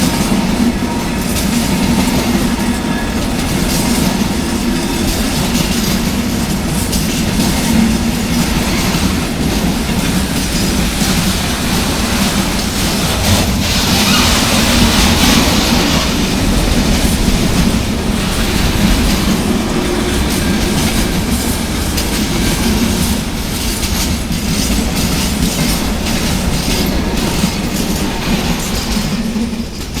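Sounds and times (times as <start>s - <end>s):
freight train rumbling past: 0.0s - 30.0s
high hiss: 10.0s - 23.4s.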